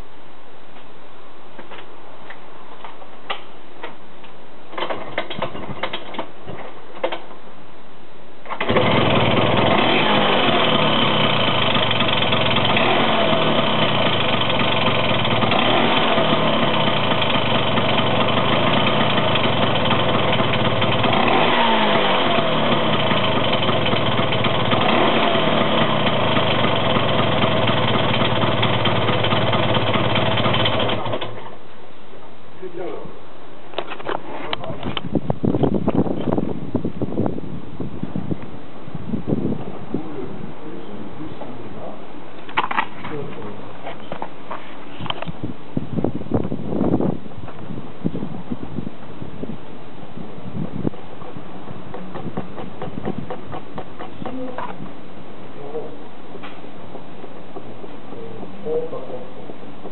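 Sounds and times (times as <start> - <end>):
scooter engine whining: 8.6 - 31.4, 50.9 - 55.0.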